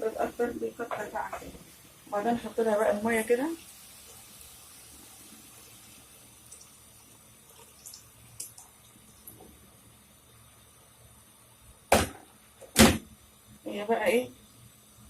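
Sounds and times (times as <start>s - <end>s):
water pouring into a pot: 2.6s - 11.2s.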